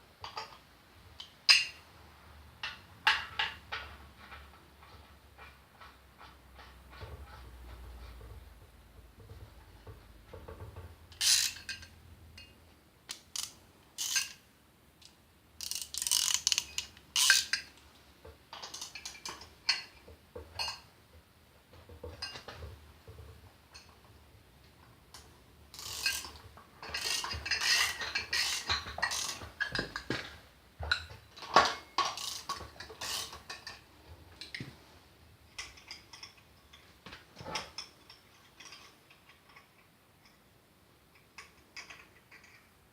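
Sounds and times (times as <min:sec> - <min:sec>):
metal tools clicking on metal: 0:11.1 - 0:12.5, 0:13.1 - 0:14.4, 0:15.0 - 0:17.8.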